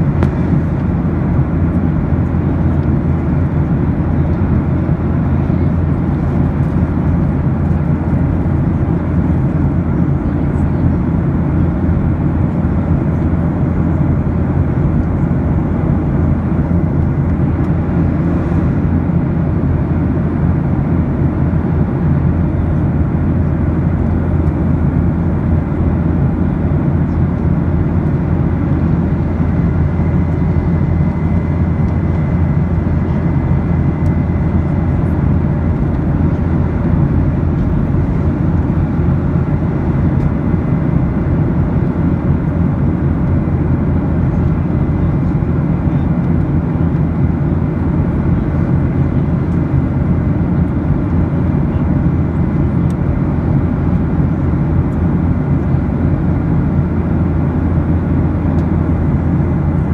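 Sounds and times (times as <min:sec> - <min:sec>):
airliner cabin engine drone: 0:00.0 - 0:59.9.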